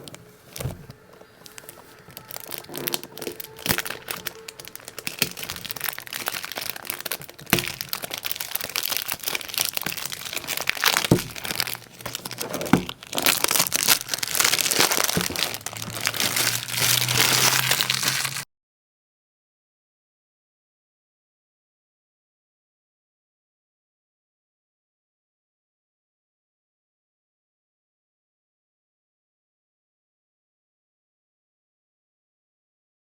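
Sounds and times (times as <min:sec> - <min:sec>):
packaging crinkling: 0:00.0 - 0:18.4.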